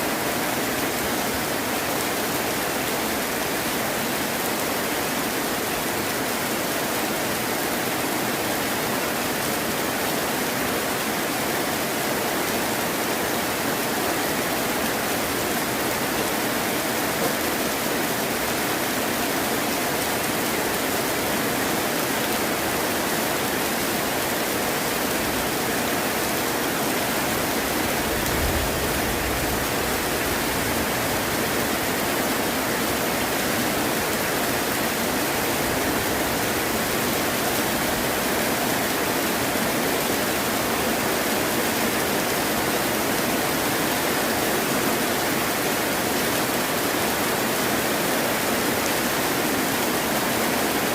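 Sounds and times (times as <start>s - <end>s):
heavy rain falling: 0.0s - 50.9s
low rumble of thunder: 28.1s - 31.2s.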